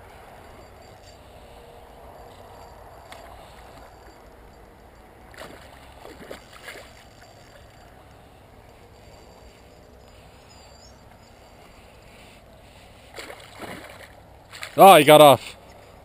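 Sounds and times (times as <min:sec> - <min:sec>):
river water flowing: 0:00.4 - 0:15.9
fish thrashing and splashing: 0:05.3 - 0:07.8, 0:13.1 - 0:14.8.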